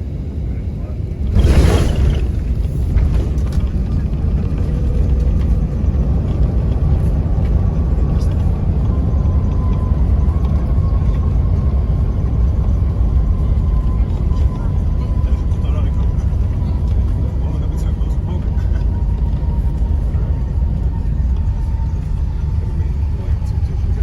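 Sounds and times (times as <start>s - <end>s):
deep rumble in airplane cabin: 0.0s - 24.0s.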